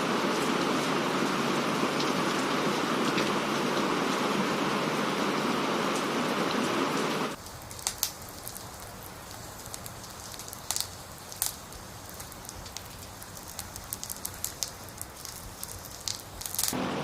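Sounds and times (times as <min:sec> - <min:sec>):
heavy rain hiss: 0:00.0 - 0:17.0.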